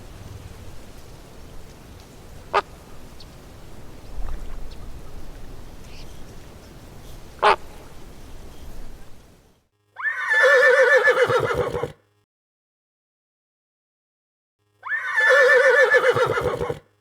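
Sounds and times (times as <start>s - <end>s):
faint calls: 2.4s - 9.4s
duck quacking: 7.4s - 7.8s.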